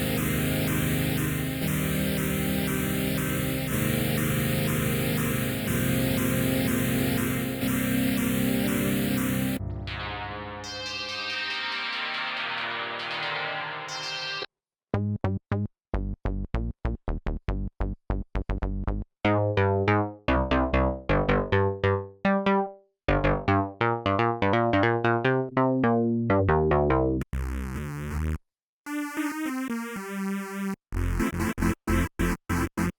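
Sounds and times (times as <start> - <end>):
buzzy sustained synthesizer with hiss: 0.0 - 11.3
synthesizer gated staccato notes: 0.0 - 14.4, 19.2 - 28.2, 28.9 - 32.9.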